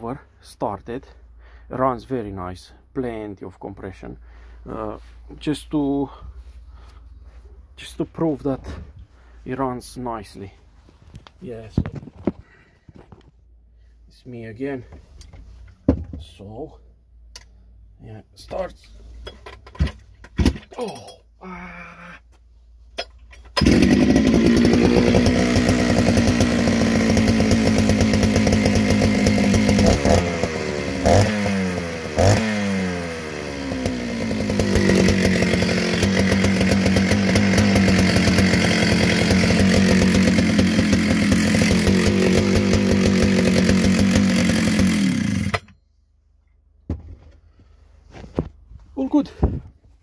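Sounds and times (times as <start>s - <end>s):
chainsaw idling and revving: 23.5s - 45.7s.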